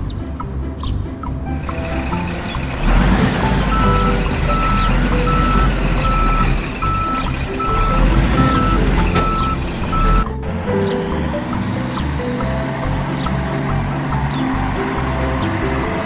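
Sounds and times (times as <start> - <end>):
background music: 0.0 - 16.0
reversing alarm beeping: 1.7 - 10.3.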